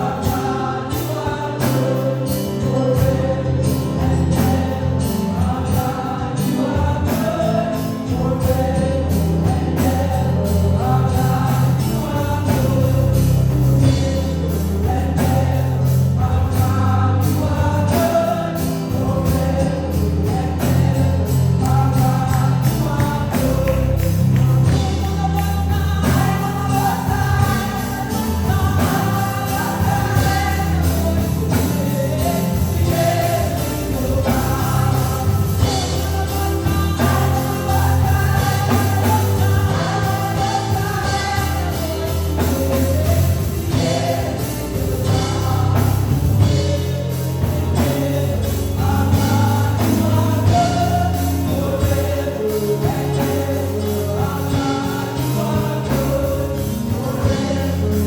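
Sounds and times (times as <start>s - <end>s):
band playing: 0.0s - 58.0s
bass line: 0.0s - 58.0s
voices singing together: 0.0s - 58.0s.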